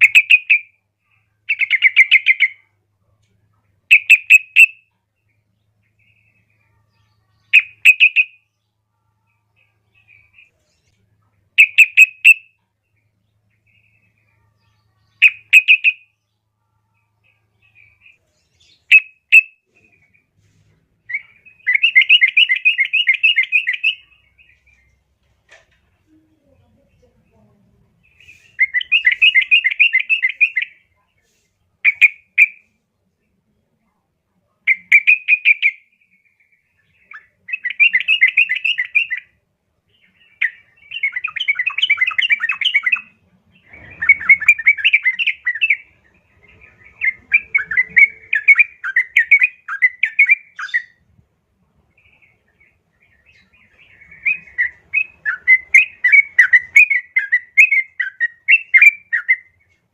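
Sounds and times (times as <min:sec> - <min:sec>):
bird chattering calls: 0:40.5 - 0:45.9, 0:46.5 - 0:50.9.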